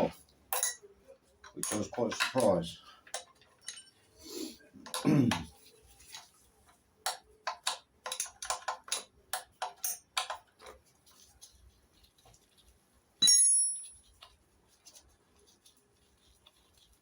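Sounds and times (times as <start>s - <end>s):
metallic clang: 13.2s - 14.0s.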